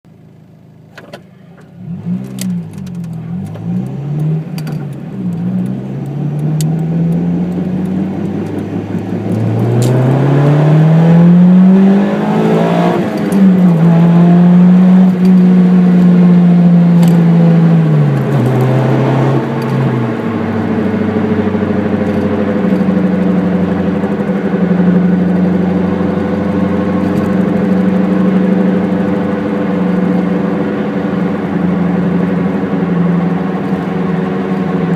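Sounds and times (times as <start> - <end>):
rumbling road noise: 0.6 - 34.9
car engine revving: 1.4 - 34.9.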